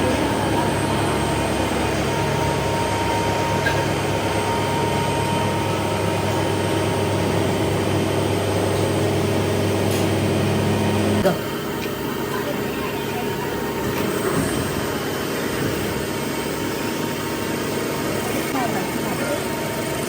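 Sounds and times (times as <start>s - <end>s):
workshop machinery humming: 0.0s - 20.0s.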